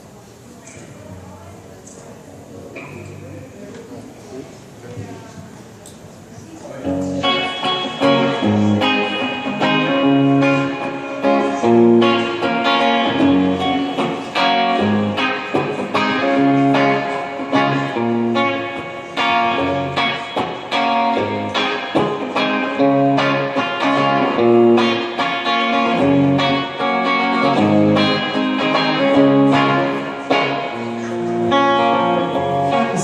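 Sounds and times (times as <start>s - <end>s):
people talking: 0.0s - 8.9s, 32.4s - 33.0s
guitar playing chords: 6.8s - 33.0s.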